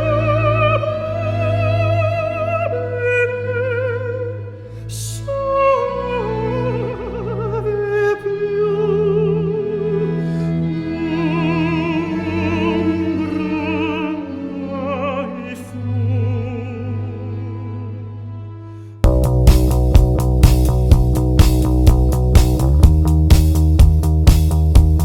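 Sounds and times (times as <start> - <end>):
operatic voice singing: 0.0 - 18.2
low orchestral accompaniment: 0.0 - 25.0.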